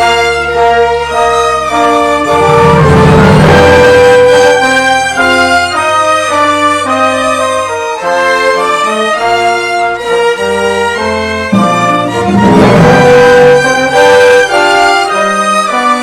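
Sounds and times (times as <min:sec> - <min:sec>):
orchestra playing sustained chords: 0:00.1 - 0:06.4, 0:11.5 - 0:15.5.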